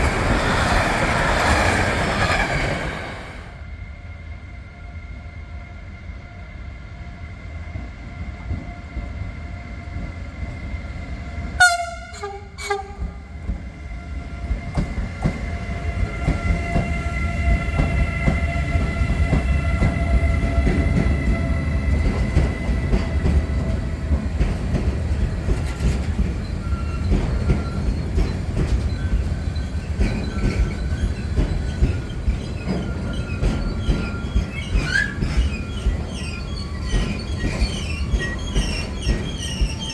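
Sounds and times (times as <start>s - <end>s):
train wheel rumble and rail clatter: 0.0s - 39.9s
high ringing of wheels on rails: 11.5s - 39.9s
train horn blast: 11.6s - 13.3s.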